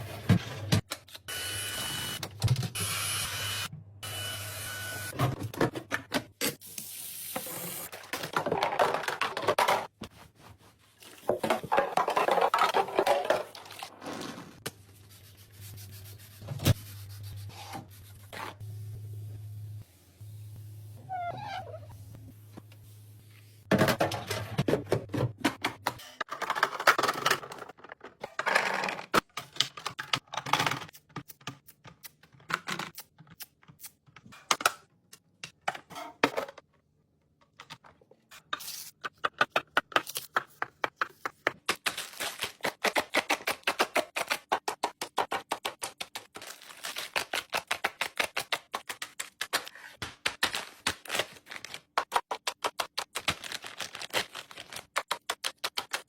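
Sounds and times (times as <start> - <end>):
packaging rustling: 46.3 - 47.7, 53.1 - 55.8.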